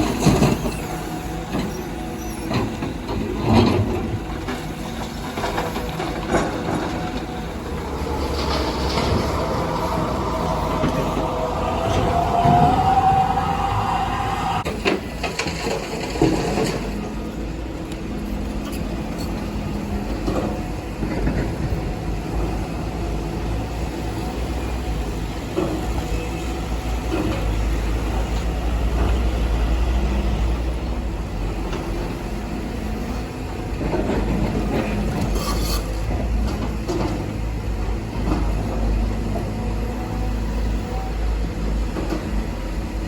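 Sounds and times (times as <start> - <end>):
diesel machinery engine rumble: 0.0 - 43.0
rising whine: 7.2 - 14.7.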